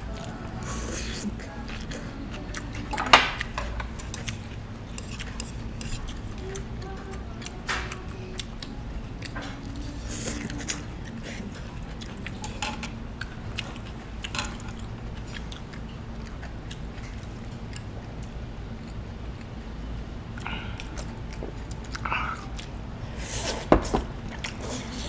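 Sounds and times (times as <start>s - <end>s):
people chewing food: 0.0s - 25.0s
steady low hum: 0.0s - 25.0s.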